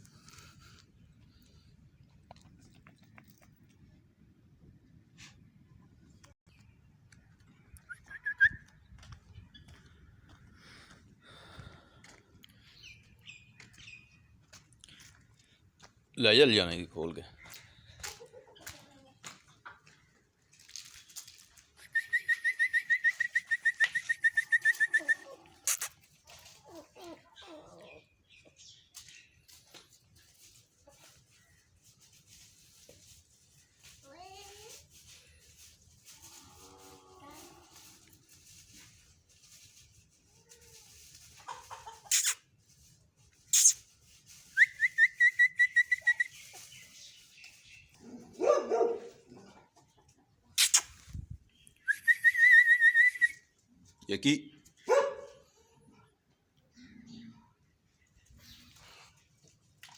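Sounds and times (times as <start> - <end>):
brief hissing burst: 50.6 - 51.1.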